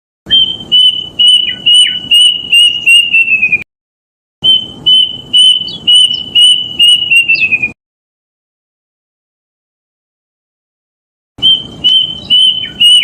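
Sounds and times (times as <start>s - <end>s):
cuckoo whistled song: 0.3s - 3.6s, 4.4s - 7.8s, 11.4s - 13.0s.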